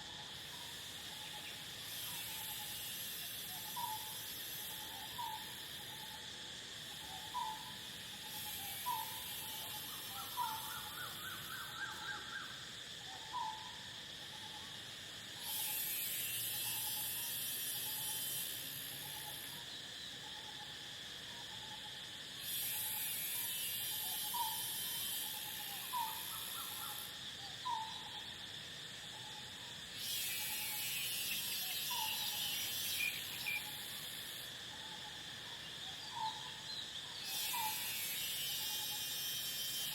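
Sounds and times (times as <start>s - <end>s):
crickets chirping: 0.0s - 39.9s
loud insect buzzing: 0.9s - 6.2s, 15.3s - 19.5s, 22.4s - 27.3s, 29.9s - 34.7s, 37.2s - 39.9s.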